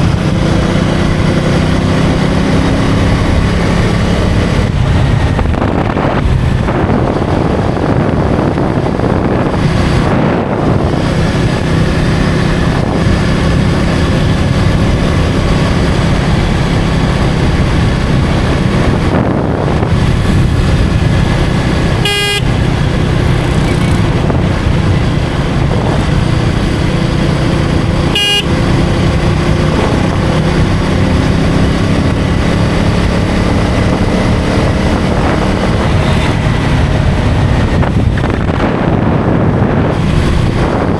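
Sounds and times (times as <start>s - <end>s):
motorcycle engine running: 0.0s - 40.9s
road and wind noise: 0.0s - 40.9s
vehicle horn beep: 22.0s - 22.7s, 28.0s - 28.7s.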